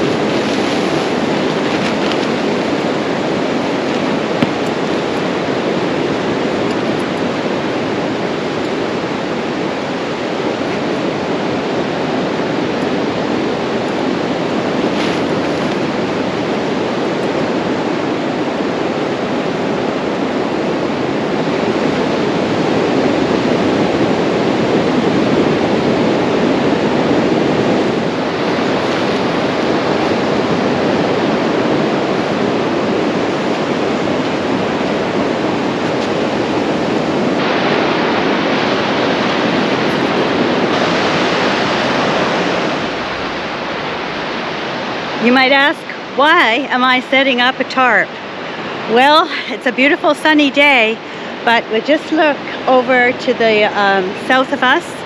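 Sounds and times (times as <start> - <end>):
surf breaking on a beach: 0.0 - 55.0.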